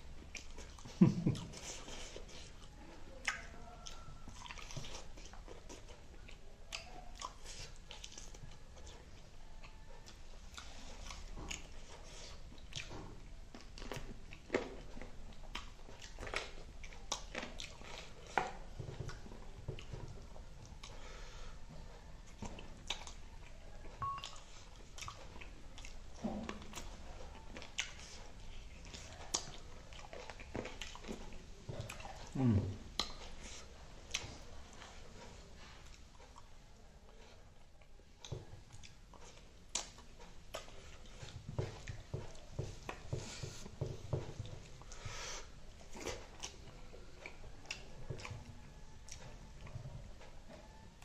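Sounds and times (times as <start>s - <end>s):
wet chewing: 0.0s - 51.0s
lip smacks and mouth clicks: 0.2s - 21.0s, 22.2s - 34.9s, 37.6s - 43.7s, 44.4s - 50.4s
breathy hisses: 45.0s - 45.6s.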